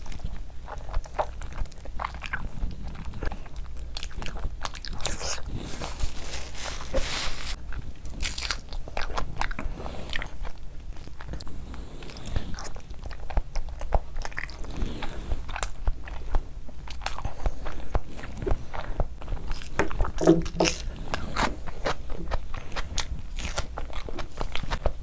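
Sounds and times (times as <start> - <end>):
wet chewing and lip smacks: 7.7 - 25.0.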